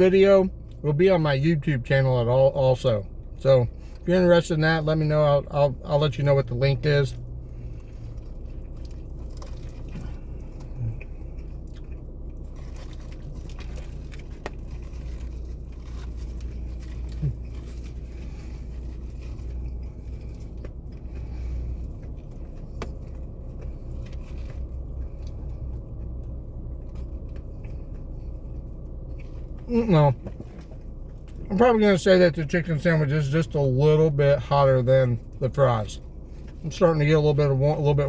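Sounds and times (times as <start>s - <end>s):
car low hum: 0.0s - 38.0s
person chewing crispy food: 7.1s - 31.5s.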